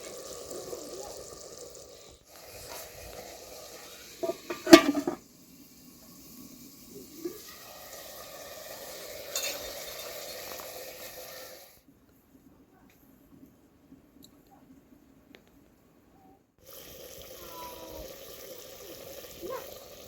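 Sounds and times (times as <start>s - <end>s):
steady hiss: 0.0s - 11.8s
utensil knocking on metal pot: 4.2s - 5.2s.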